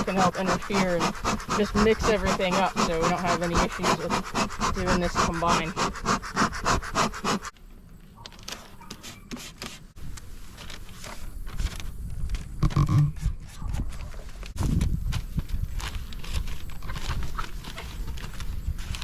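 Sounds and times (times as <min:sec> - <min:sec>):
bee smoker bellows puffing: 0:00.0 - 0:07.5.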